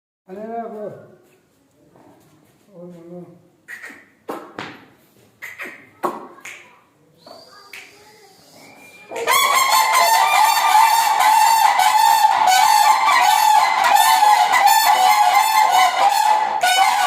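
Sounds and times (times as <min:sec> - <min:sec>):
cranes honking calls: 0:09.3 - 0:17.0.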